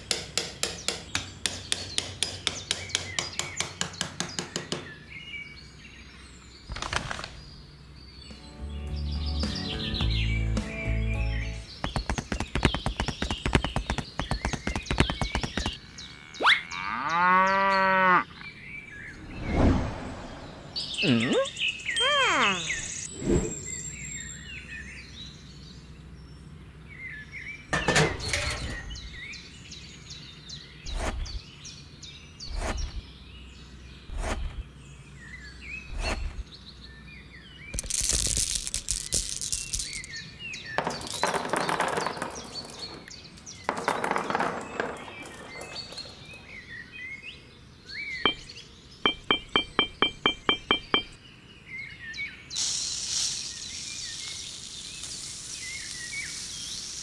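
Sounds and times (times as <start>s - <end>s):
birds chirping: 0.0s - 57.0s
knocks and clicks of handling: 11.8s - 15.8s
run of sharp clicks: 11.8s - 15.8s
granules pouring from toy bucket: 37.8s - 40.2s, 40.8s - 43.0s.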